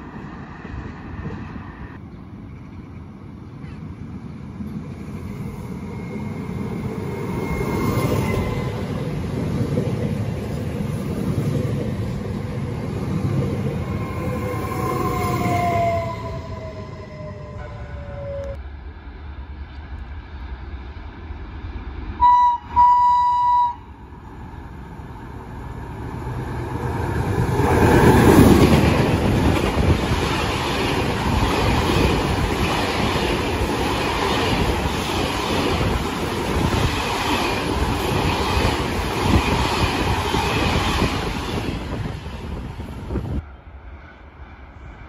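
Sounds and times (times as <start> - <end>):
freight train passing rumble: 0.0 - 45.0
train horn blasts: 22.2 - 24.0.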